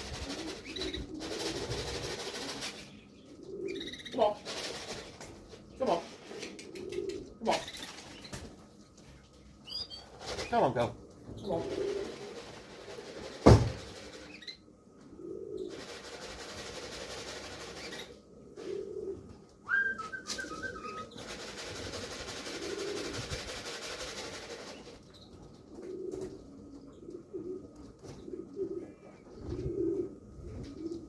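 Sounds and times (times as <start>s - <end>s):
pigeons cooing: 0.0s - 31.0s
sharp knock: 13.4s - 13.8s.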